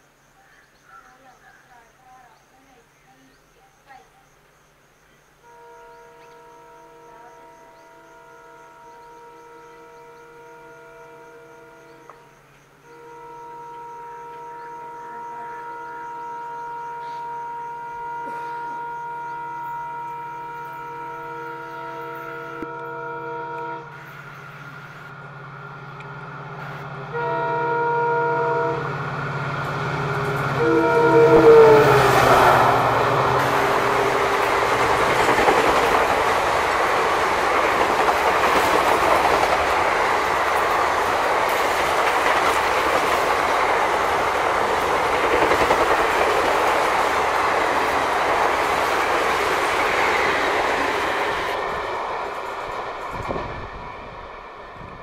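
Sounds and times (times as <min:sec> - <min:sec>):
train horn blasts: 0:05.4 - 0:25.2, 0:26.6 - 0:54.2
wheels rushing on rail: 0:05.4 - 0:55.0
locomotive engine drone: 0:05.5 - 0:55.0.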